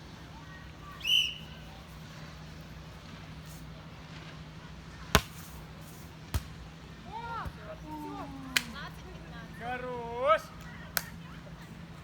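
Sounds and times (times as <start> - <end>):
volleyball struck by hand: 5.1 - 5.6, 6.3 - 6.7, 7.4 - 7.8.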